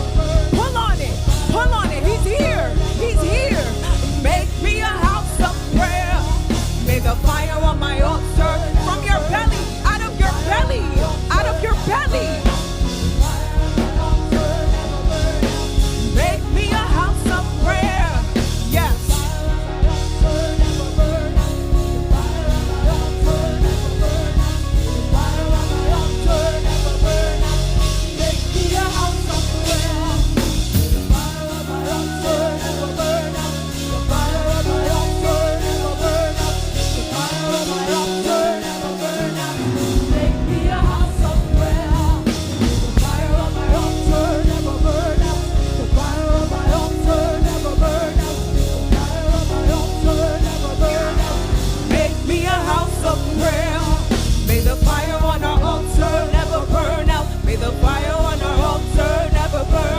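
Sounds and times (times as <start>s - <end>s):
drum beat: 0.0s - 33.4s, 34.0s - 59.9s
person singing: 0.0s - 59.9s
worship band music: 0.0s - 59.9s.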